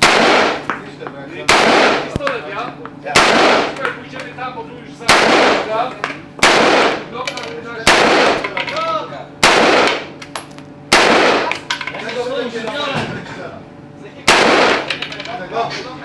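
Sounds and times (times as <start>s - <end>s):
gunshots with echoing tail: 0.0s - 0.7s, 1.5s - 2.2s, 3.2s - 3.8s, 5.1s - 5.8s, 6.4s - 7.1s, 7.9s - 8.4s, 9.4s - 10.1s, 10.9s - 11.5s, 14.3s - 14.9s.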